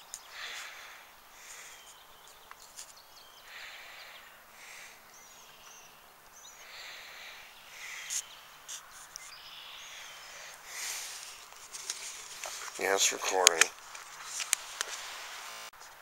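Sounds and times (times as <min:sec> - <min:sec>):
breathy rustling near microphone: 0:00.0 - 0:05.3, 0:06.4 - 0:15.6
high bird chirps: 0:00.0 - 0:10.6
faint outdoor ambience: 0:00.0 - 0:16.0
handling clicks: 0:12.6 - 0:13.8.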